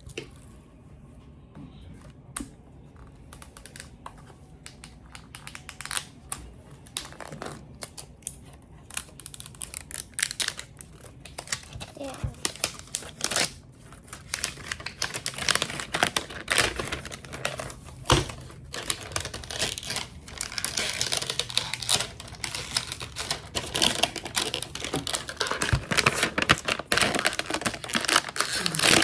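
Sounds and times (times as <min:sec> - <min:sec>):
plastic packaging crinkling: 0:03.4 - 0:29.0.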